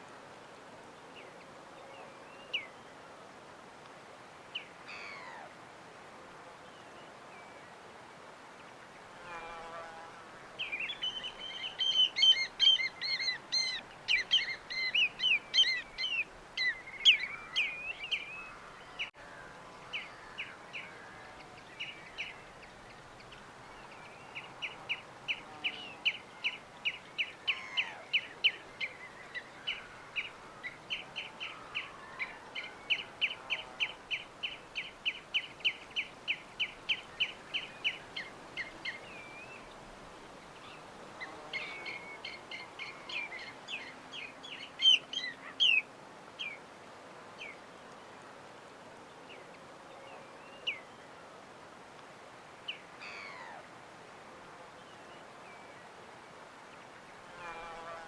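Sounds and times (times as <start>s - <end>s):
faint steady hiss: 0.0s - 58.0s.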